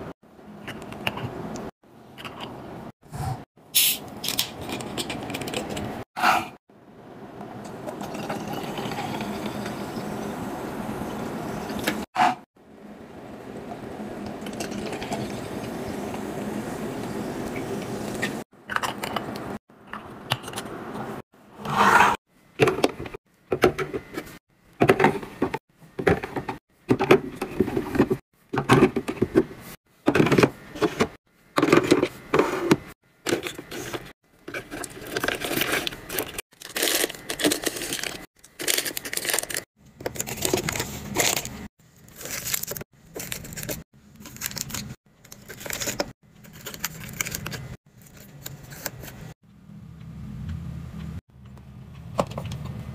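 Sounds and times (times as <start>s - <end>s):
plastic packaging rustling: 33.4s - 49.3s.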